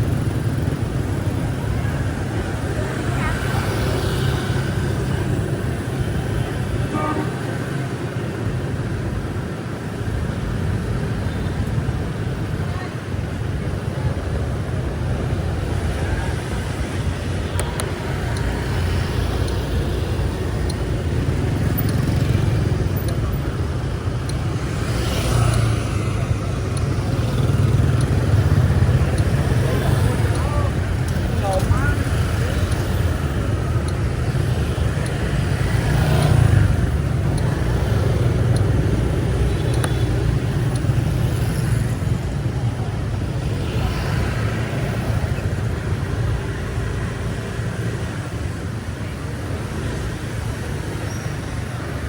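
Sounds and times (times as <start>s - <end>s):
street traffic rumble: 0.0s - 52.0s
car horn toot: 6.9s - 7.5s.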